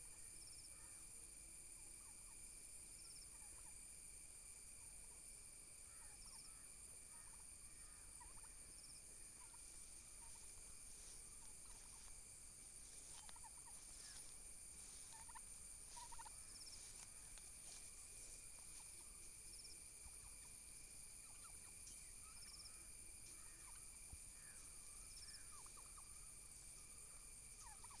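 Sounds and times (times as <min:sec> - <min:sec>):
steady high-pitched hum: 0:00.0 - 0:28.0
turkeys calling: 0:07.0 - 0:28.0.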